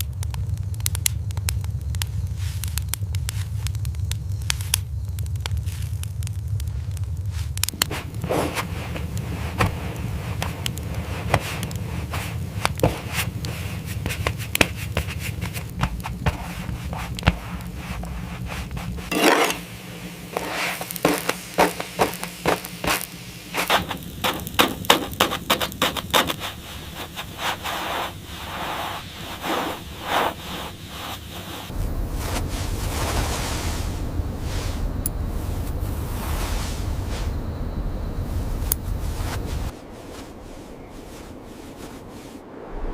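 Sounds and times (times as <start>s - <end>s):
low rumble: 31.5s - 42.9s.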